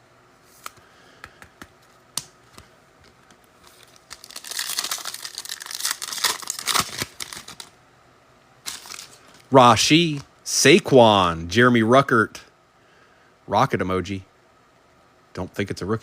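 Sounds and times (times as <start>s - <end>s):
wrapper crinkling and tearing: 3.6s - 7.8s, 8.6s - 9.5s.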